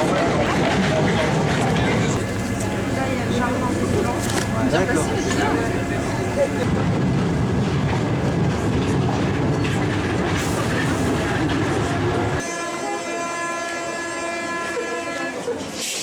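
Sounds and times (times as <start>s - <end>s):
train rumble and clatter: 0.0s - 12.5s
high-pitched whine: 2.2s - 6.7s.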